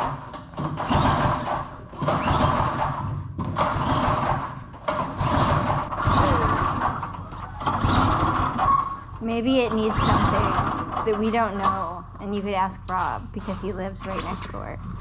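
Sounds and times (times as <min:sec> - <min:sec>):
small engine pull-start cranking: 0:00.0 - 0:08.9, 0:09.7 - 0:11.4.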